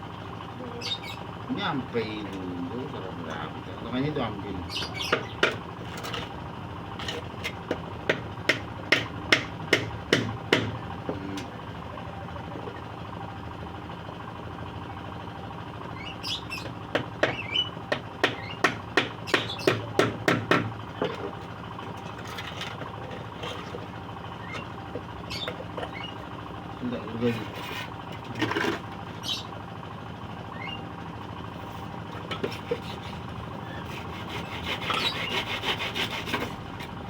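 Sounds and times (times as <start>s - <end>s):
hammer striking wood: 8.1s - 11.2s, 16.9s - 21.2s.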